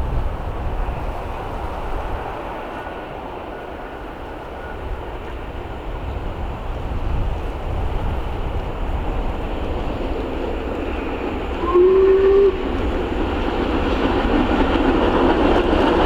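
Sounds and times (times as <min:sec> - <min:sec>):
steam train rumble: 0:00.0 - 0:16.0.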